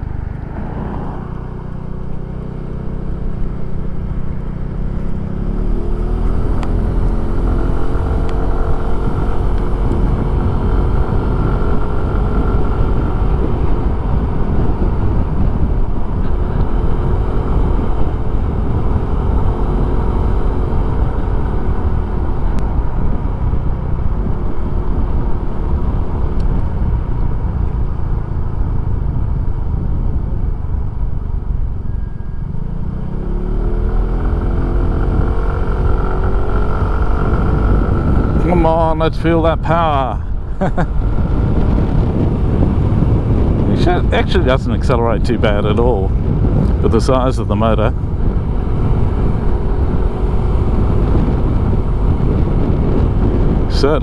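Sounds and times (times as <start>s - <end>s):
scooter engine running: 0.0s - 39.0s, 39.6s - 44.2s, 45.0s - 54.0s
wind noise on microphone: 0.0s - 54.0s.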